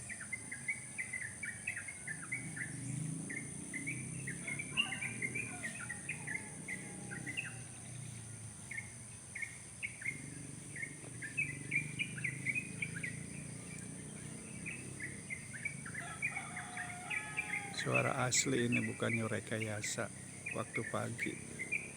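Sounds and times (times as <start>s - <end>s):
birds chirping: 0.0s - 21.9s.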